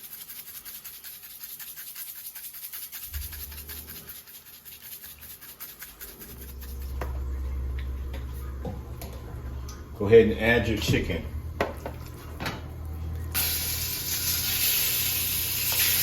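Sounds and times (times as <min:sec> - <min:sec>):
seasoning shaker rattling: 0:00.0 - 0:07.0
low hum: 0:05.9 - 0:15.8.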